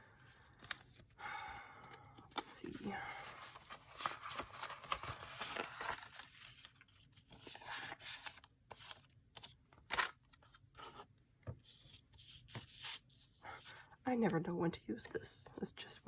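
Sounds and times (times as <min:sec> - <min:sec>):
paper rustling and sliding: 0:03.2 - 0:13.4.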